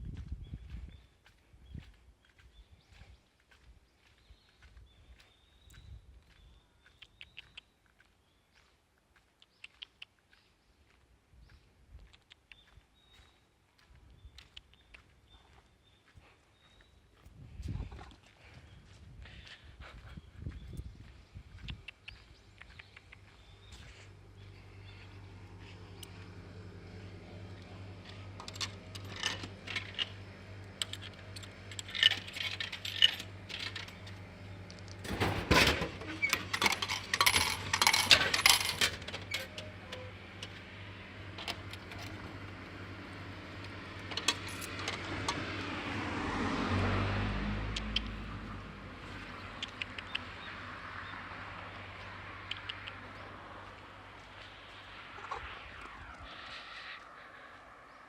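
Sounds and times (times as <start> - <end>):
steady low hum: 10.5 - 46.1, 47.7 - 58.0
coins clinking in vending machine: 28.4 - 30.1, 30.8 - 34.1, 35.0 - 40.5, 41.4 - 42.3, 44.0 - 45.1
low rumble: 50.3 - 58.0.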